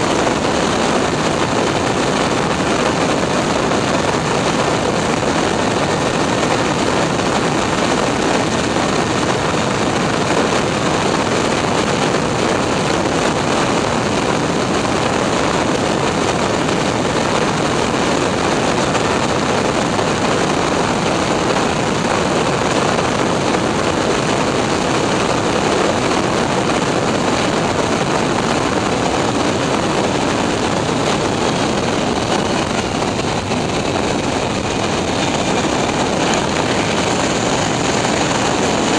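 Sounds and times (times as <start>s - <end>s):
jet engine noise: 0.0s - 38.9s
rush of airflow: 0.0s - 38.9s.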